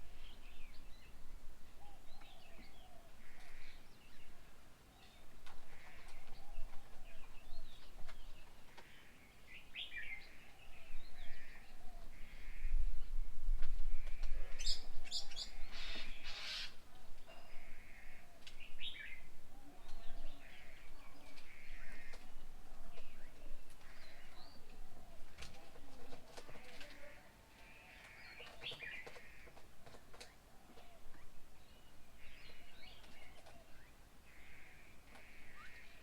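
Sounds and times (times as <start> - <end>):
birds chirping and calling: 14.0 - 36.0
harsh bird calls: 14.1 - 16.8.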